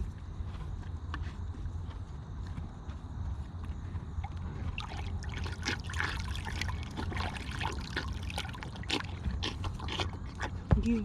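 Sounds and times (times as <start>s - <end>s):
water sloshing in a bowl: 4.7s - 10.9s.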